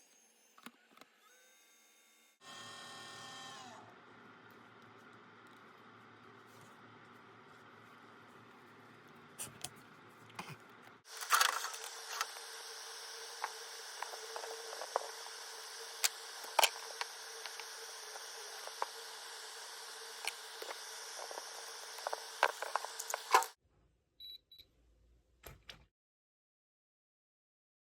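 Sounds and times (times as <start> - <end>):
tape unwinding crackling hiss: 4.0 - 23.6.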